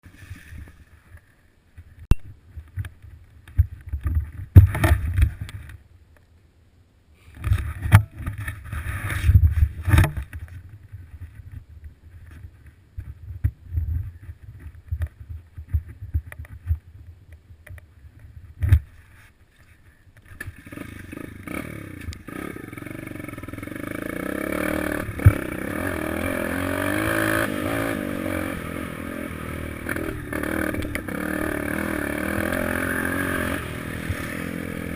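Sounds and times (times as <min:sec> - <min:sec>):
motorbike engine revving: 0:20.6 - 0:34.9.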